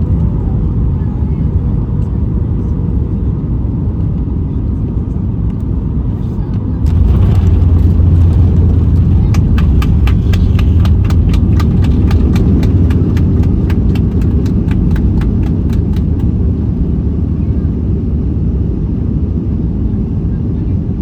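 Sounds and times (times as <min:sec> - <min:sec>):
airplane cabin rumble: 0:00.0 - 0:21.0
wheels knocking over runway: 0:06.8 - 0:16.3.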